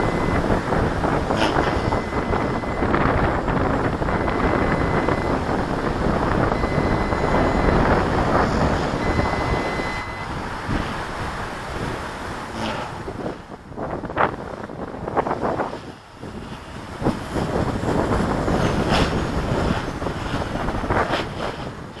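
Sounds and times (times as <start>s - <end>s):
faint high steady whine: 0.0s - 10.5s
strong wind buffeting microphone: 0.0s - 22.0s.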